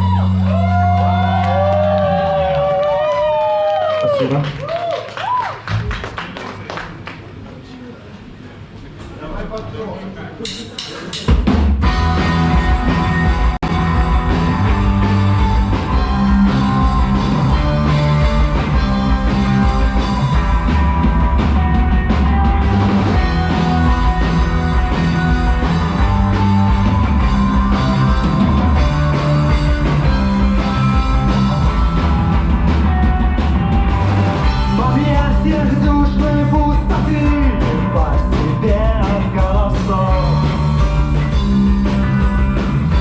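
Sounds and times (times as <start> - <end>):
bass guitar: 0.0 - 4.6, 11.4 - 43.0
drum kit: 10.4 - 43.0
electric guitar: 11.8 - 43.0.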